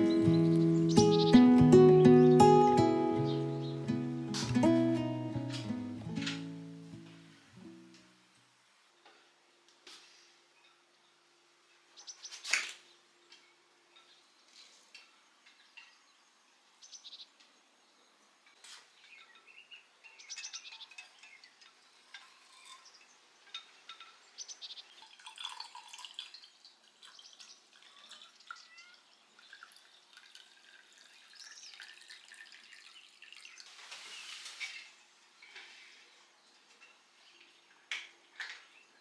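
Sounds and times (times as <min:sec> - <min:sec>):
birds chirping and singing: 0:00.0 - 0:05.0.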